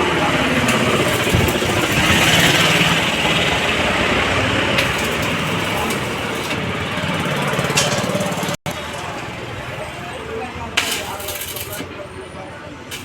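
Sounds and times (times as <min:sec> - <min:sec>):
welding arc crackling: 0:00.0 - 0:08.5, 0:10.5 - 0:12.2.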